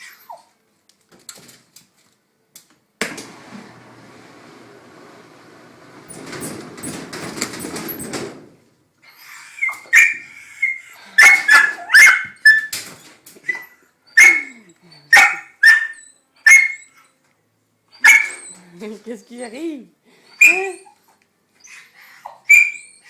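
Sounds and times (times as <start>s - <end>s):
washing machine rattling: 4.2s - 8.6s
dog barking high-pitched yelps: 9.6s - 12.8s, 13.5s - 17.0s, 18.0s - 18.6s, 20.4s - 21.0s, 22.2s - 23.0s.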